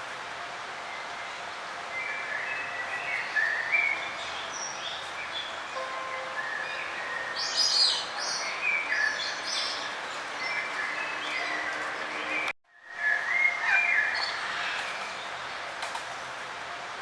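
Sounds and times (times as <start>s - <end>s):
steady background hiss: 0.0s - 9.7s
songbirds chirping: 0.8s - 15.8s.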